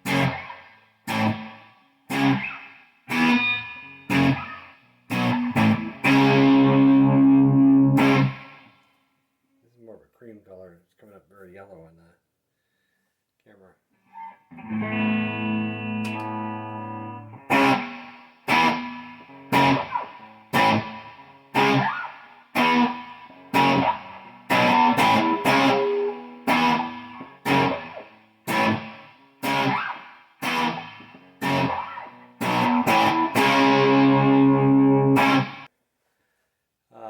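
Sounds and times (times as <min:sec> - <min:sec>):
electric guitar chords: 0:00.0 - 0:08.7, 0:14.5 - 0:35.7.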